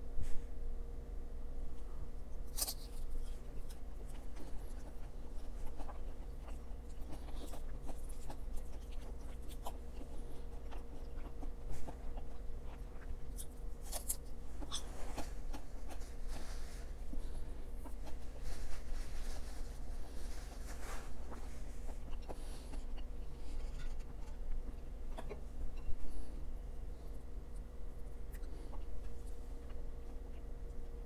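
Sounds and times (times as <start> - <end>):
low electrical hum: 0.0 - 31.0
wet chewing: 2.5 - 19.2, 20.0 - 26.0.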